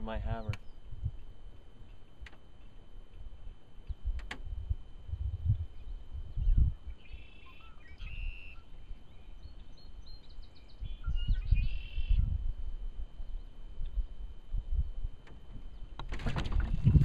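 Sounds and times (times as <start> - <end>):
small birds chirping: 0.3 - 4.2, 5.6 - 12.3
rumbling bumps on microphone: 15.4 - 17.0.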